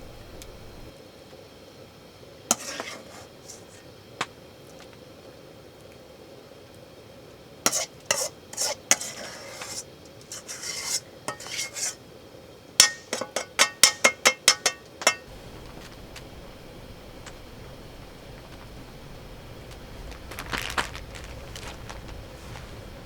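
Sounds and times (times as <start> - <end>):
metal utensil scraping cookware: 2.5 - 3.8, 7.7 - 12.0, 12.8 - 15.3.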